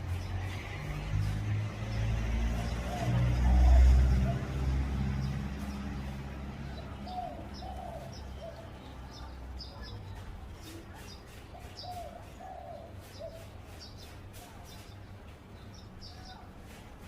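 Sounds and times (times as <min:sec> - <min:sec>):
low vehicle rumble: 0:00.0 - 0:11.0
small birds chirping: 0:00.0 - 0:17.0
dove cooing: 0:02.5 - 0:10.0, 0:11.4 - 0:13.8.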